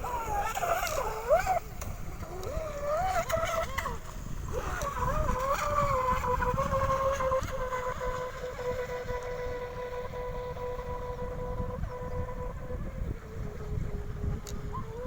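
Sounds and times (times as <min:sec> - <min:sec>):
electric motor whine: 0:00.0 - 0:15.0.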